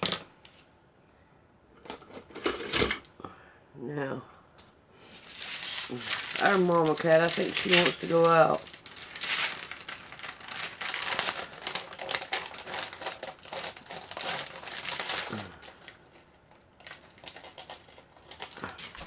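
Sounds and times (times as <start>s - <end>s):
paper crinkling and rustling: 5.1s - 19.0s.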